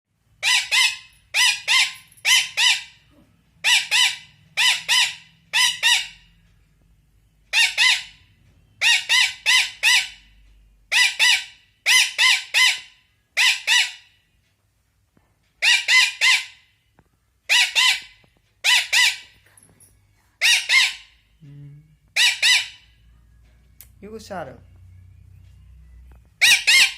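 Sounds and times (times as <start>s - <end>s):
parakeet squawking loudly: 0.4s - 3.0s, 3.6s - 6.2s, 7.5s - 8.2s, 8.8s - 10.2s, 10.9s - 14.1s, 15.6s - 16.7s, 17.5s - 19.3s, 20.4s - 21.2s, 22.2s - 22.9s, 26.4s - 26.9s.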